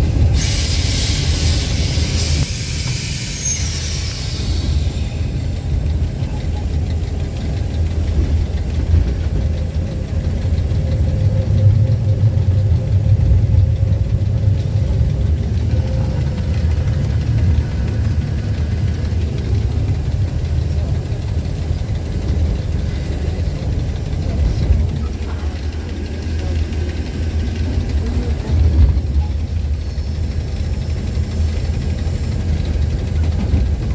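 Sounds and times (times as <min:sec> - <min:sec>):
locomotive diesel engine rumbling: 0:00.0 - 0:33.9.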